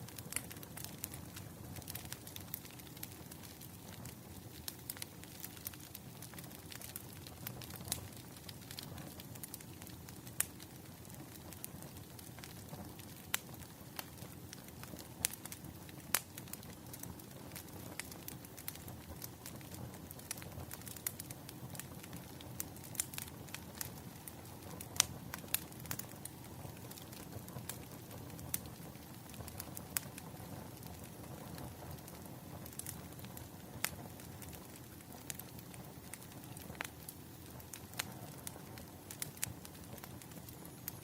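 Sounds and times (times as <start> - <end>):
fire pops and snaps: 0.0 - 41.0
low rumble of burning logs: 0.0 - 41.0
wood fire crackling: 0.0 - 41.0.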